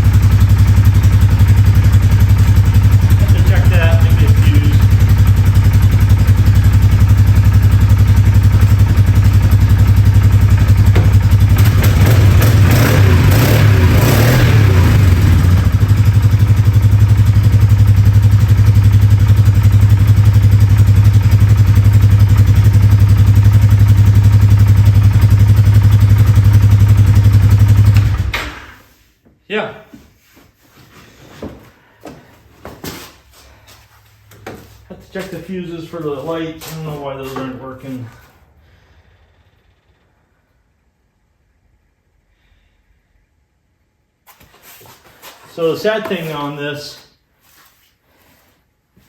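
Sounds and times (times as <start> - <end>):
atv engine idling: 0.0 - 28.6.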